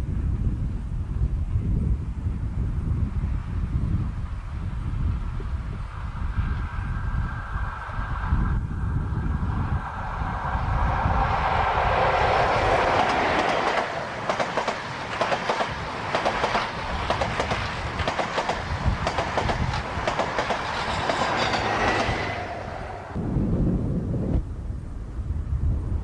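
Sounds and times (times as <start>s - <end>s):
diesel train passing at speed: 2.2s - 23.4s
clickety-clack of wheels on track: 10.0s - 22.8s.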